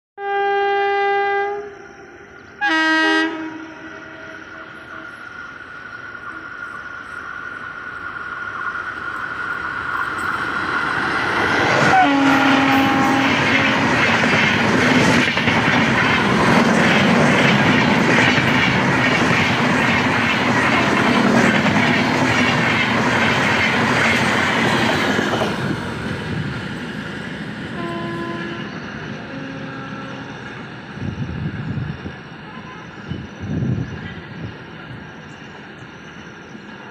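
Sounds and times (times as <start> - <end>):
train horn blasts: 0.2 - 2.0, 2.6 - 5.1, 11.8 - 13.8, 20.7 - 21.1, 27.7 - 30.4
train rumble: 1.5 - 36.9.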